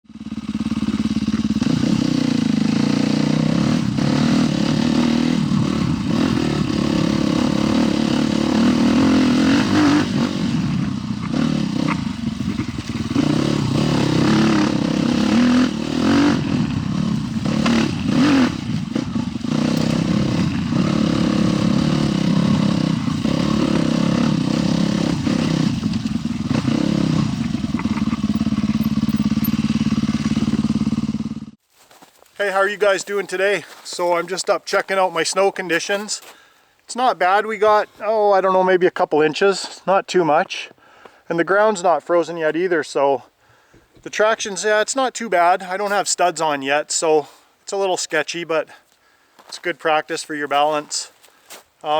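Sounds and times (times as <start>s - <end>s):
motorcycle engine revving: 0.0s - 31.6s.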